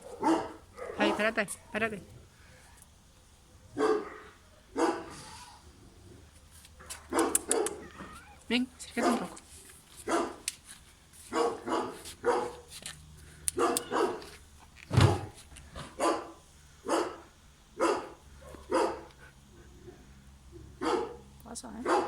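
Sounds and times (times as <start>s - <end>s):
dog barking: 0.0s - 1.4s, 3.8s - 5.2s, 7.1s - 7.9s, 9.0s - 9.4s, 10.1s - 10.4s, 11.3s - 12.7s, 13.6s - 14.3s, 15.9s - 17.2s, 17.8s - 19.1s, 20.8s - 22.0s.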